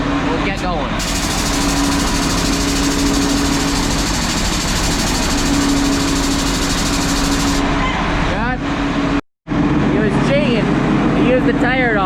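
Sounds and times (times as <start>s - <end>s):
air pump hiss and rattle: 0.6s - 7.7s
machine humming: 1.0s - 7.8s.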